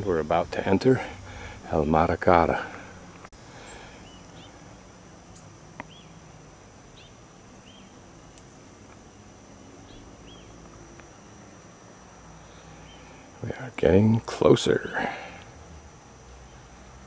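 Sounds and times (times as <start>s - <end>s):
songbird chirping: 3.1s - 4.6s, 5.2s - 6.2s, 6.9s - 8.7s, 9.6s - 10.7s.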